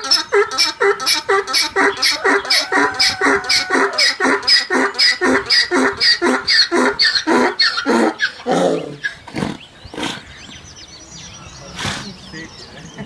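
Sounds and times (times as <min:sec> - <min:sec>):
duck quacking: 0:00.0 - 0:08.1.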